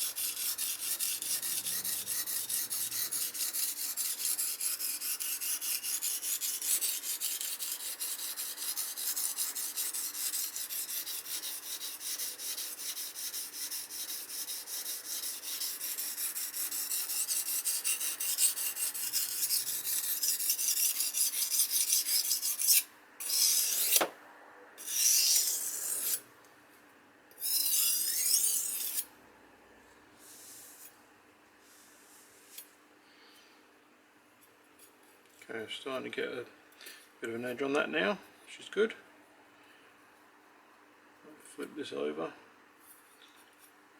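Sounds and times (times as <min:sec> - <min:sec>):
knife scraping on whetstone: 0:00.0 - 0:24.1, 0:24.8 - 0:26.2, 0:27.3 - 0:29.1.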